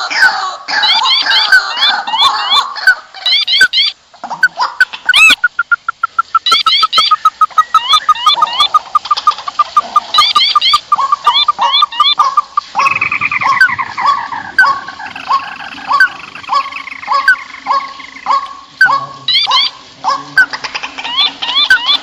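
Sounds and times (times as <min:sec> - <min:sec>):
high rising bird chirps: 0:04.8 - 0:19.8, 0:21.0 - 0:22.0.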